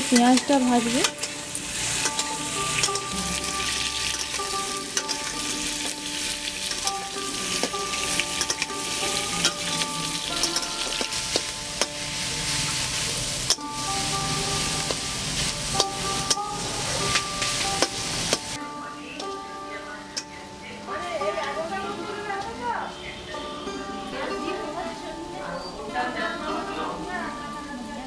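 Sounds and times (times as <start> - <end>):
potatoes and onions sizzling in oil: 0.0 - 28.0
metal ladle scraping and knocking pan: 1.0 - 12.1.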